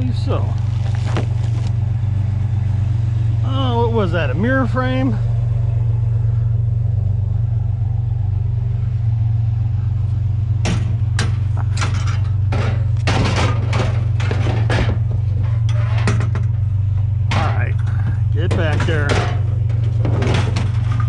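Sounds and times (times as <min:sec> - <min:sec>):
vehicle engine and road drone: 0:00.0 - 0:21.0
rattles and knocks: 0:10.6 - 0:21.0.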